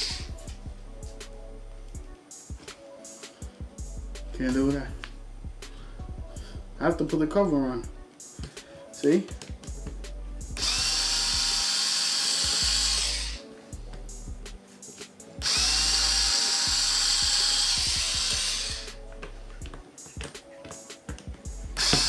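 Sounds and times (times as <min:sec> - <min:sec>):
small drill whining: 0:00.0 - 0:00.3, 0:10.6 - 0:13.5, 0:15.4 - 0:18.9, 0:21.8 - 0:22.0.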